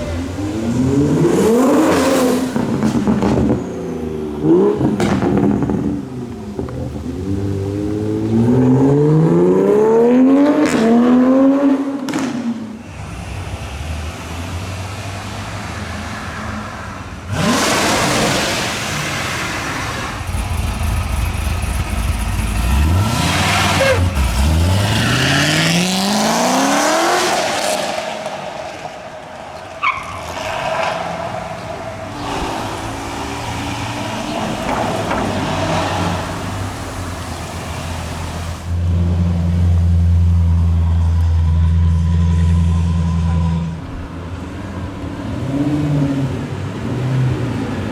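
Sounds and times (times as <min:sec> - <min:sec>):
supercar engines accelerating: 0:00.0 - 0:41.7.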